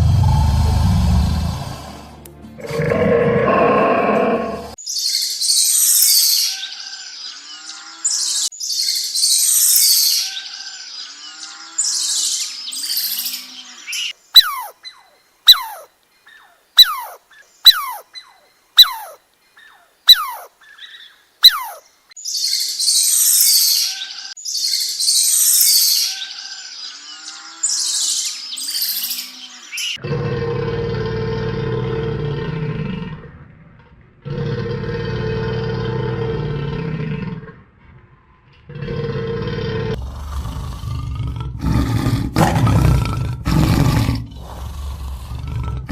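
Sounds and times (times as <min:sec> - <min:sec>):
harsh bird chattering: 0:14.0 - 0:14.7, 0:15.5 - 0:18.2, 0:18.8 - 0:21.8.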